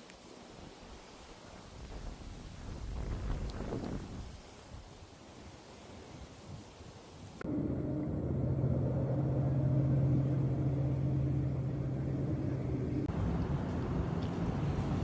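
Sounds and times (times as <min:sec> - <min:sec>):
rough noisy vehicle sound: 0:07.4 - 0:15.0
vehicle engine humming: 0:07.4 - 0:15.0.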